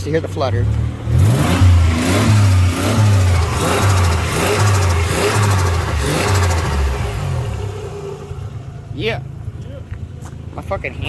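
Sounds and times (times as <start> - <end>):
car engine throttle blips: 0.0 - 11.0.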